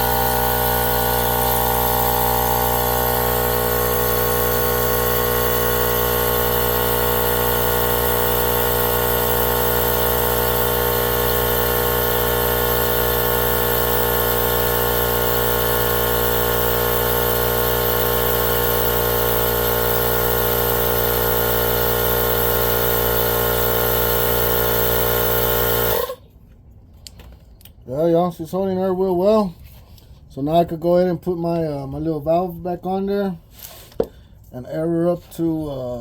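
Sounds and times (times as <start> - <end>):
air compressor running: 0.0 - 26.2.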